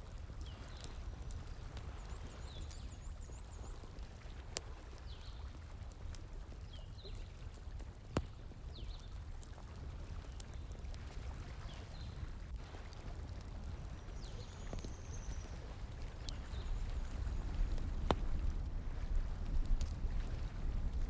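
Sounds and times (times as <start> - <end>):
flowing water: 0.0 - 21.0
wood fire crackling and popping: 0.0 - 21.0.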